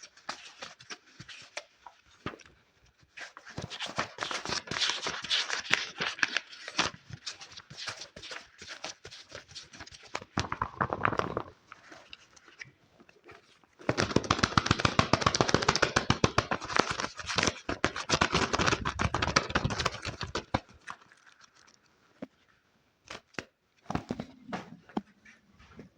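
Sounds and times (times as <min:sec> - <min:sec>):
tapping and scratching on objects: 0:03.5 - 0:12.6, 0:13.8 - 0:21.7.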